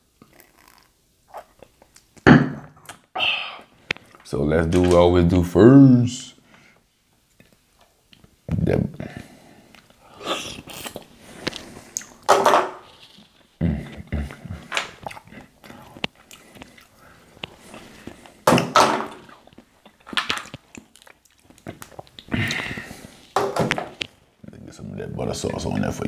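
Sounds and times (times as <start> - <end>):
man chewing and smacking: 7.2 - 8.4, 9.7 - 12.3, 14.2 - 18.4, 19.3 - 23.1.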